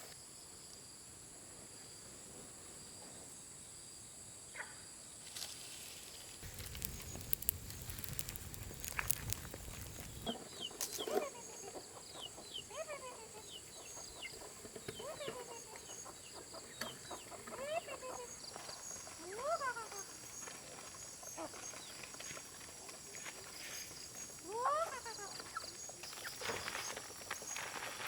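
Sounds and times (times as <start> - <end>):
insects droning: 0.0 - 28.0
rustling and clicks: 6.4 - 11.2
chicks peeping: 6.4 - 18.4
chickens clucking: 6.5 - 20.1.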